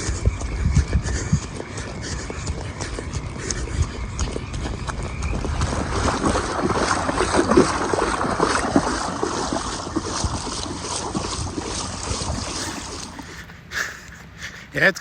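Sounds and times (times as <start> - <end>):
wind buffeting microphone: 0.0 - 14.8
running footsteps on wet path: 0.0 - 15.0.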